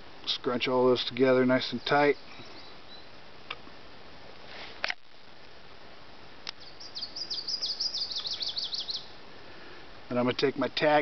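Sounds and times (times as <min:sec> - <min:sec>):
songbird singing: 0:00.0 - 0:03.8, 0:06.4 - 0:11.0.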